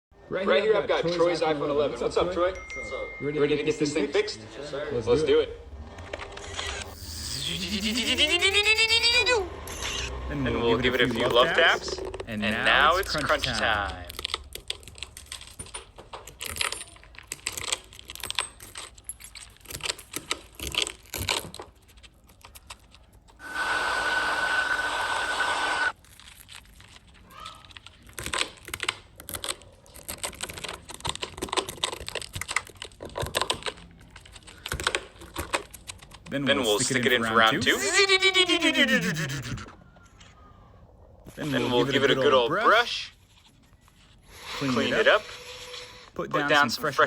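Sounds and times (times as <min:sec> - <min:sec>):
hissing with high whine: 0:06.6 - 0:10.1, 0:23.4 - 0:25.9
glass cracking and clicking: 0:11.4 - 0:23.4, 0:25.9 - 0:36.3.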